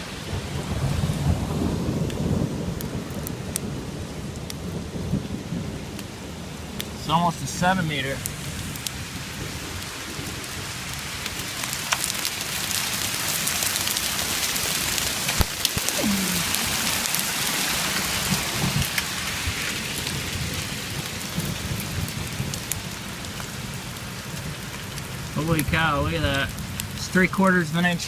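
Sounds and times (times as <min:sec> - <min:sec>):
hail and rain pattering: 0:00.0 - 0:28.0
hailstones cracking: 0:00.0 - 0:28.0.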